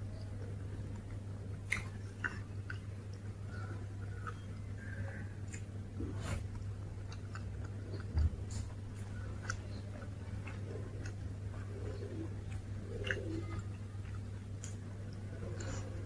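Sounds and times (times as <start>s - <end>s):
chewing soft food: 0.0s - 16.0s
steady low hum: 0.0s - 16.0s.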